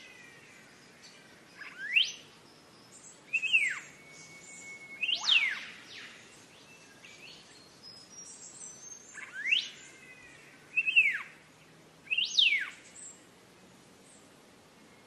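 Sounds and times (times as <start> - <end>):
faint high bird chirps: 0.0 - 11.4, 12.1 - 13.3
bird whistling slurred notes: 3.3 - 6.2.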